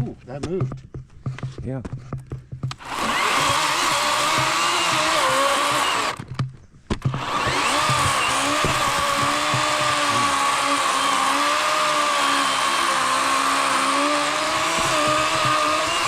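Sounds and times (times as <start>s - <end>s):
electric chainsaw whining: 2.7s - 6.3s, 7.0s - 16.0s.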